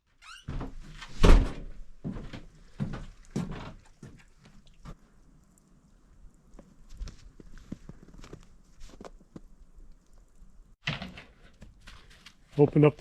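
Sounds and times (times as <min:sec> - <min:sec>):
shed door creaking: 0:00.1 - 0:01.9.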